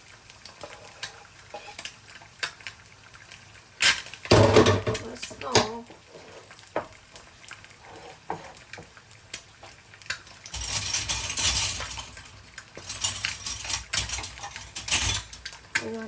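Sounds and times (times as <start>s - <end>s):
food sizzling in a hot pan: 0.0s - 16.0s
utensils clinking: 10.5s - 16.0s.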